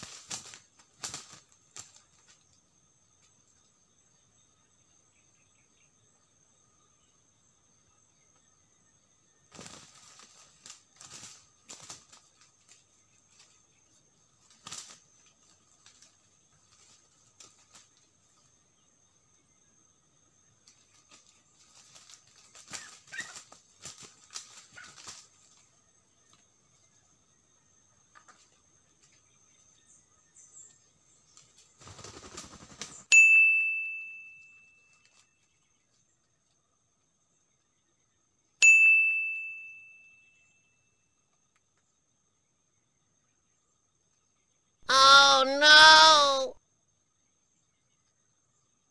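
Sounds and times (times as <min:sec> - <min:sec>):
roosters wing flapping: 0:00.0 - 0:02.4, 0:09.5 - 0:13.6, 0:14.4 - 0:18.1, 0:20.6 - 0:25.7, 0:31.3 - 0:33.1
dry leaves rustling: 0:20.8 - 0:25.6
bell-like ding: 0:33.1 - 0:34.8, 0:38.6 - 0:40.5
insect trilling: 0:44.8 - 0:46.6.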